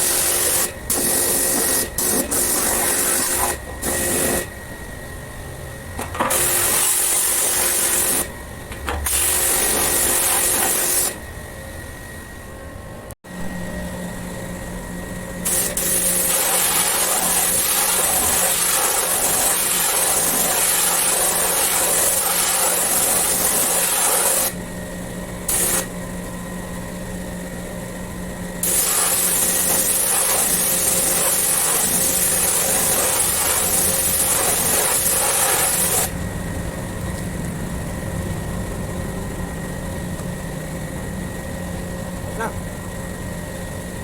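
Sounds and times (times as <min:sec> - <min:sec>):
pressure washer spraying water: 0:00.0 - 0:04.4, 0:06.3 - 0:08.3, 0:09.1 - 0:11.2, 0:15.5 - 0:24.6, 0:25.5 - 0:25.9, 0:28.6 - 0:36.1.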